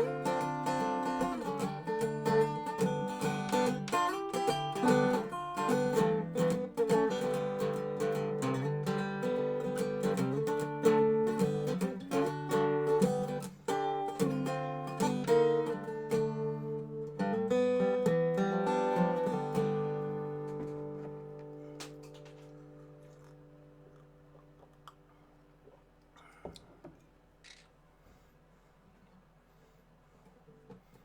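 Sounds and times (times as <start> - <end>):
resonator guitar playing: 0.0 - 23.9.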